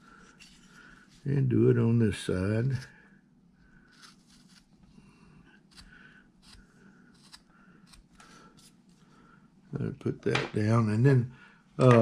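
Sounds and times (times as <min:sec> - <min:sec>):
carving tool scraping wood: 0:03.9 - 0:04.7, 0:05.7 - 0:08.8.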